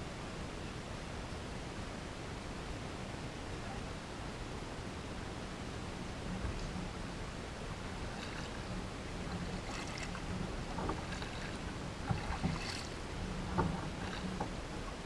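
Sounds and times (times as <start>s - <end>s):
steady background hiss: 0.0s - 15.0s
paddle splashes: 7.7s - 15.0s
short knocks: 9.3s - 14.6s.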